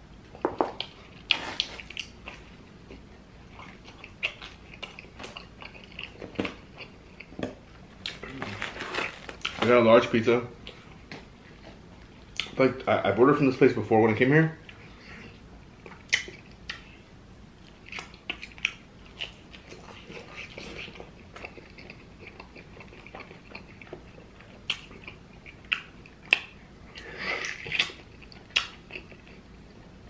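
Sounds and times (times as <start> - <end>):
person chewing food: 0.3 - 9.7, 17.6 - 30.0
squelchy chewing: 17.6 - 29.7.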